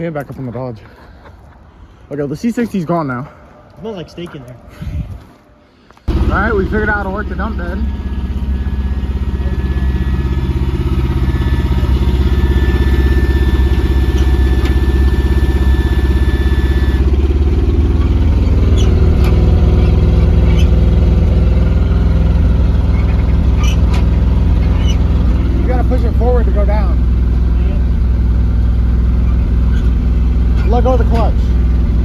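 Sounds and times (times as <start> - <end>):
thin high whine: 6.1 - 17.3
truck engine running: 6.1 - 32.0.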